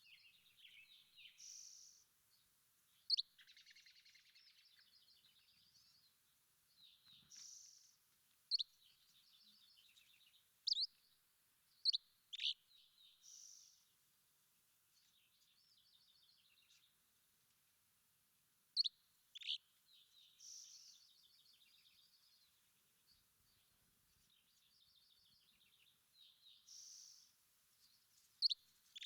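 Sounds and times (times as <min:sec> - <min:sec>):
birds trilled twittering: 0:00.0 - 0:02.1, 0:02.9 - 0:13.9, 0:18.8 - 0:29.0
songbirds whistling: 0:03.1 - 0:03.8, 0:10.7 - 0:10.9, 0:18.8 - 0:19.6.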